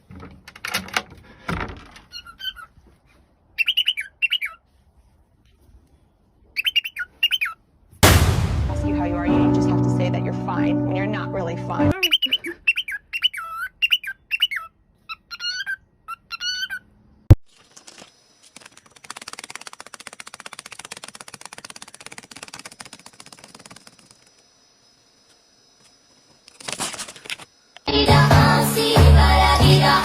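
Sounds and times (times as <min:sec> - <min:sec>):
small bird chirping: 0:03.6 - 0:04.6, 0:05.8 - 0:07.6, 0:11.9 - 0:16.9
fast fluttering noise: 0:17.5 - 0:24.9, 0:26.4 - 0:27.5.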